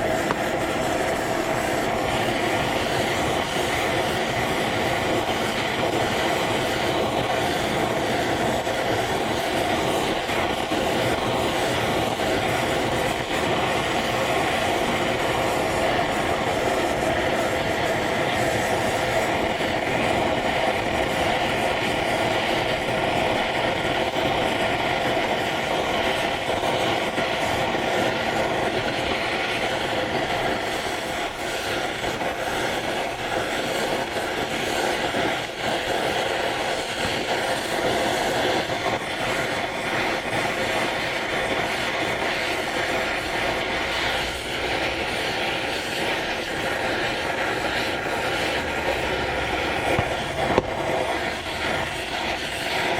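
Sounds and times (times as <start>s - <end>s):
gas torch flame rushing: 0.0s - 52.9s.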